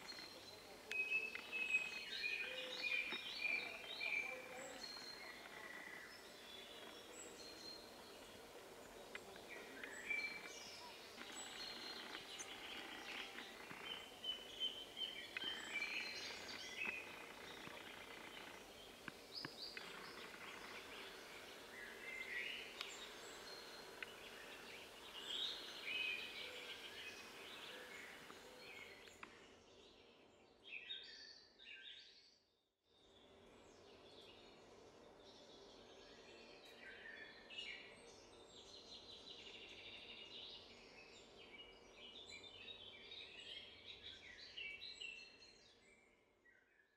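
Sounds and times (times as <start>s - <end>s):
birds chirping and calling: 0.0s - 29.3s
steady background hiss: 0.0s - 29.3s.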